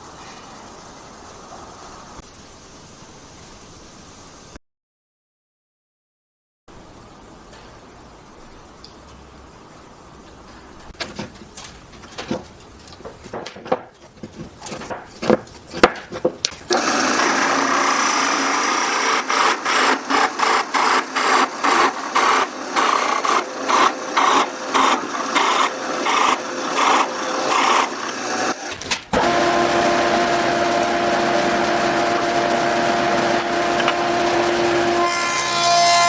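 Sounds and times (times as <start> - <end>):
wood knocks and clicks: 10.8 - 16.7
woodworking tool sanding wood: 11.0 - 36.0.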